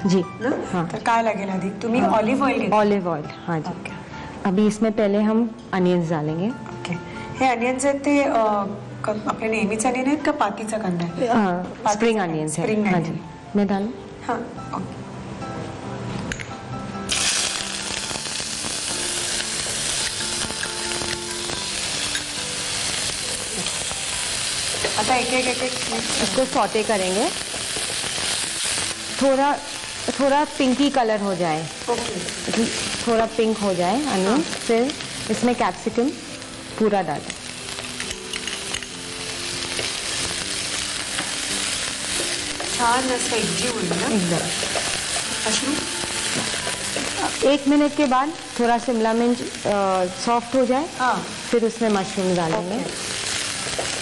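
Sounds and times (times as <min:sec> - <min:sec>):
onions sizzling in oil: 0:17.0 - 0:54.0.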